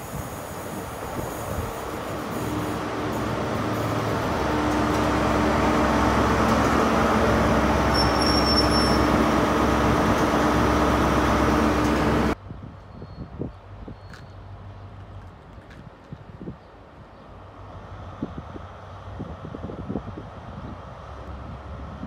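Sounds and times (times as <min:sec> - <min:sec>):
diesel locomotive engine hum: 0:00.0 - 0:22.0
high squeal: 0:07.5 - 0:09.8.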